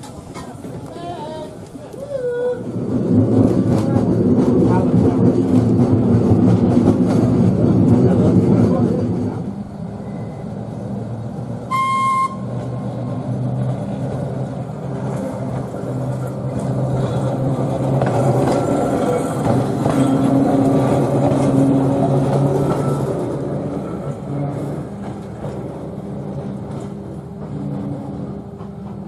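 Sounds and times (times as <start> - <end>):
tram rumbling on rails: 0.0 - 29.0
tram horn toot: 11.7 - 12.7.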